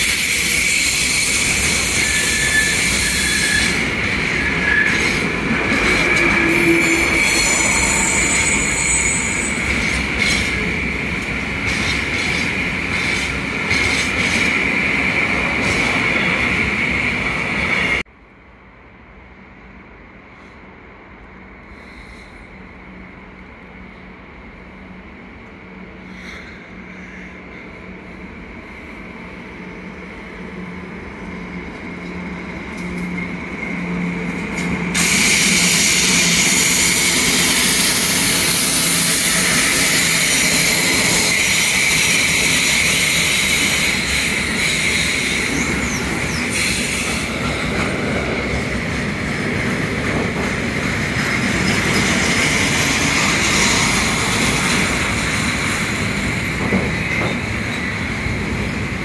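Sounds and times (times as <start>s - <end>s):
high wheel squeal: 0.0s - 5.2s, 6.0s - 10.5s, 35.0s - 47.6s
freight train rolling past: 0.0s - 59.0s.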